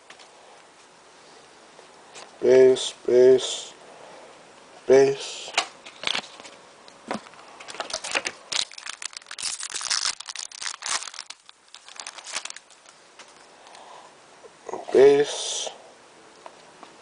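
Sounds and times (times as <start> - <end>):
cards being handled: 5.9 - 13.4
foil wrapper crinkling and tearing: 7.7 - 13.0.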